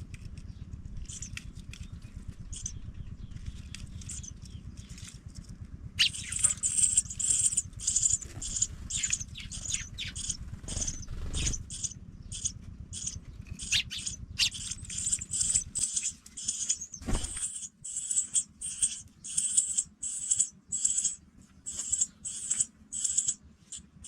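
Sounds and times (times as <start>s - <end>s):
low rumble: 0.0s - 17.5s
nestlings cheeping: 1.0s - 5.1s, 6.0s - 24.0s.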